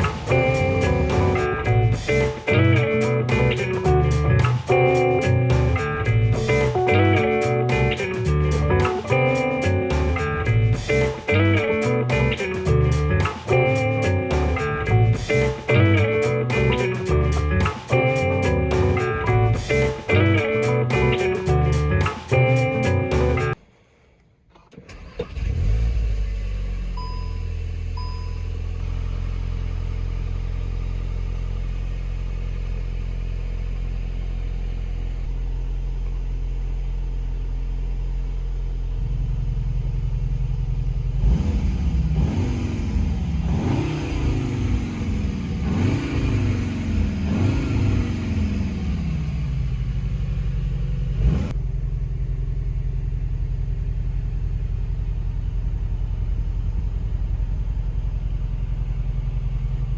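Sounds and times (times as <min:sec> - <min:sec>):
car engine idling and revving: 0:00.0 - 0:23.6, 0:24.6 - 0:59.9
exhaust sharp crack: 0:00.0 - 0:23.6.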